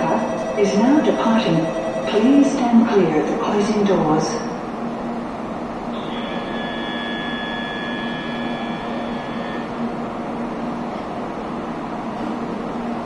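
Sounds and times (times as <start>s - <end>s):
electronic warning tone: 0.0s - 3.4s, 5.9s - 10.0s
stationary train hum and hiss: 0.0s - 13.0s.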